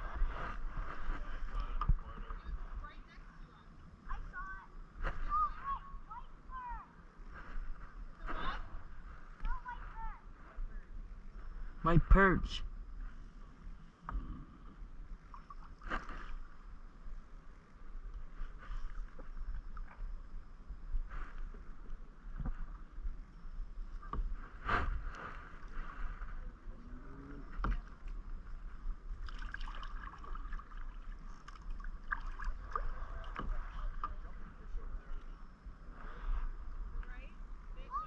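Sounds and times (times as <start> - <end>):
paddle strokes splashing: 27.5 - 34.4.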